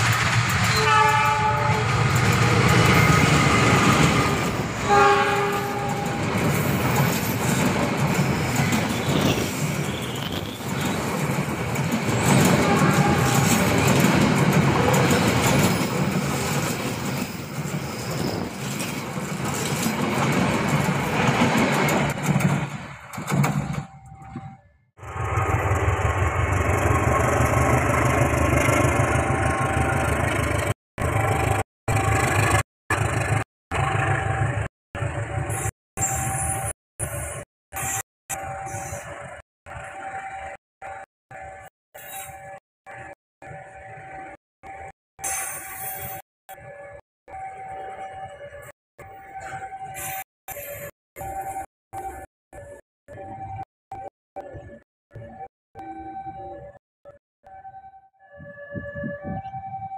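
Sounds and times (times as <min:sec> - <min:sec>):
train wheels rumbling on rails: 0:00.0 - 0:37.4
train horn blasts: 0:00.7 - 0:01.9, 0:04.8 - 0:06.2, 0:12.6 - 0:13.6.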